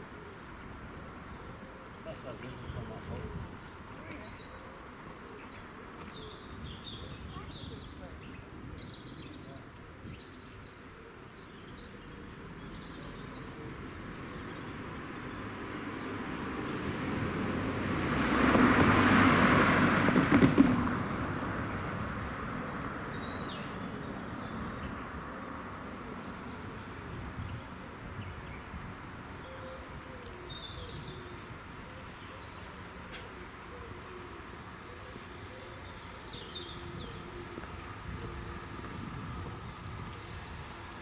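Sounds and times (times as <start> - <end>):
small birds chirping: 0.1 - 16.9, 22.2 - 41.0
passing train rumble: 15.2 - 29.4, 33.7 - 41.0.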